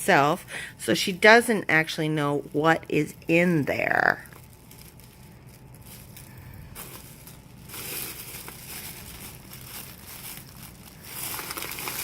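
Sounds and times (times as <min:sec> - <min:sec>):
plastic bag crinkling: 0:01.0 - 0:12.0.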